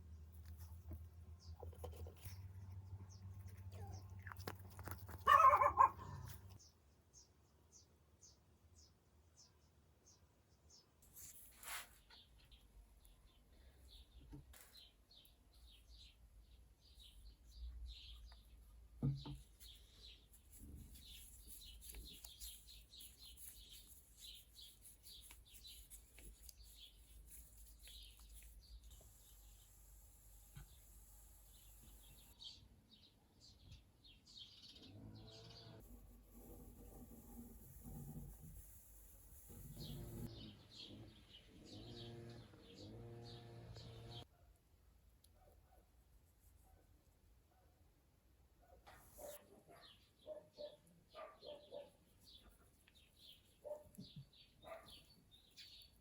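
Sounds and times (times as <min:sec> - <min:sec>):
small bird chirping: 0:00.4 - 0:44.3, 0:48.9 - 0:56.0
dog barking: 0:05.2 - 0:06.3, 0:48.6 - 0:52.0, 0:53.6 - 0:54.0, 0:54.6 - 0:55.0.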